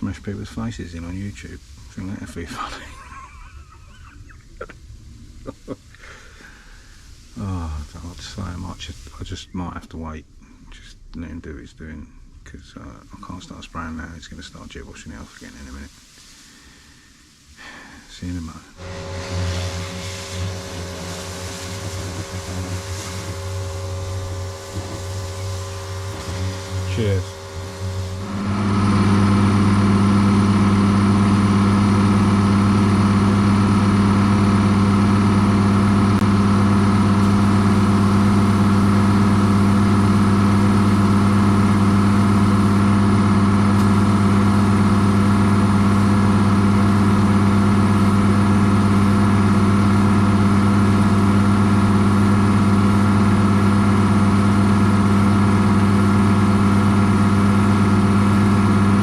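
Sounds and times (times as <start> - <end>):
engine running with even hum: 18.8 - 59.0.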